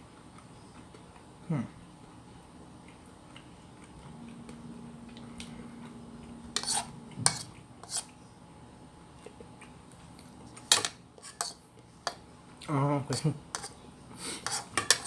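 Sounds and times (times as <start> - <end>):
faint steady hum: 0.0 - 15.0
cutlery clinking against dishes: 6.6 - 8.1, 10.6 - 12.2, 13.1 - 13.8, 14.4 - 15.0.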